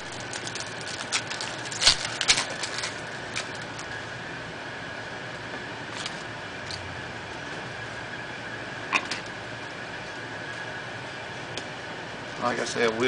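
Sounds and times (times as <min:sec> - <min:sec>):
wrapper crackling: 0:00.0 - 0:03.9
steady background hum: 0:00.0 - 0:13.0.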